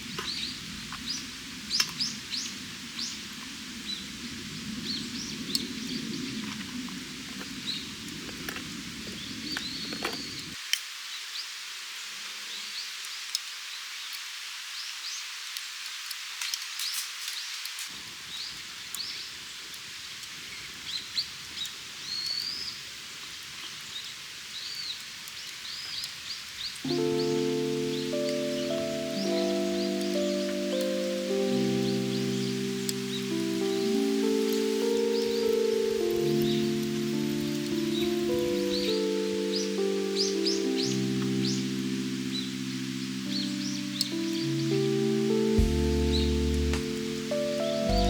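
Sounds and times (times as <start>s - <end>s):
small birds chirping: 0.0s - 11.6s, 12.4s - 48.0s
steady outdoor hiss: 0.0s - 48.0s
low outdoor rumble: 45.6s - 46.9s.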